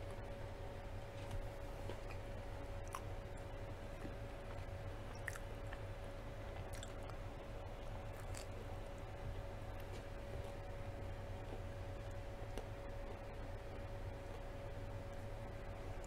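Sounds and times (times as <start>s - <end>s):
faint steady hum: 0.0s - 16.0s
person chewing: 1.8s - 3.1s, 3.9s - 5.8s, 6.5s - 7.2s, 8.1s - 8.6s
biting into pizza: 8.1s - 8.6s.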